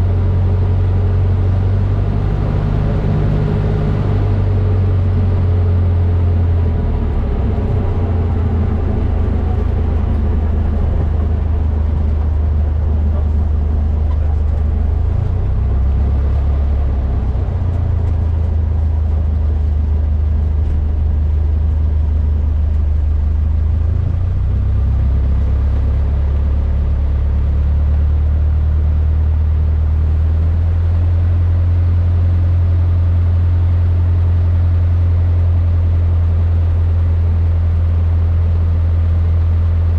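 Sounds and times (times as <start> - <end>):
light aircraft engine droning: 0.0 - 29.9.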